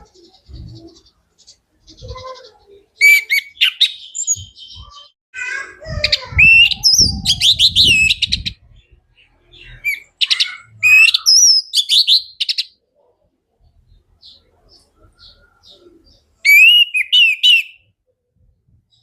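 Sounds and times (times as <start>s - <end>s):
thrush singing whistled notes: 16.4s - 17.9s.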